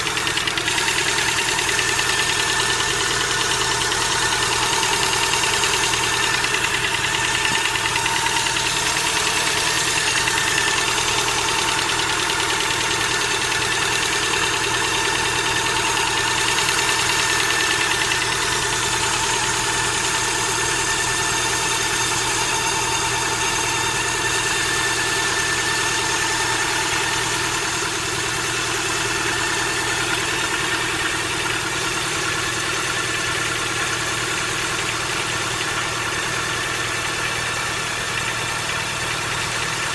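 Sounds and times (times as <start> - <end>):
engine valve ticking: 0.0 - 14.4
car engine idling: 0.0 - 39.9.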